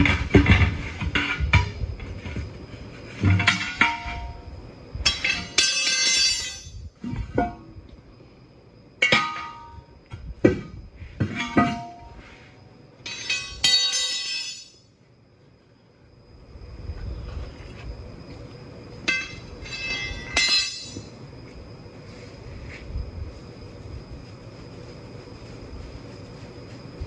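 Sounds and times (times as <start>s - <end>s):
steel tools clanking on wheel rim: 0.0s - 2.5s, 3.1s - 7.7s, 9.0s - 12.3s, 13.0s - 14.8s, 19.0s - 21.2s.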